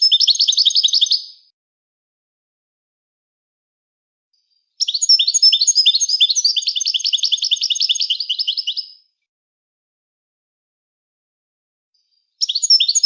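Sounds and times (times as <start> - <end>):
goldfinch singing: 0.0 - 1.5, 4.8 - 9.1, 12.4 - 13.0.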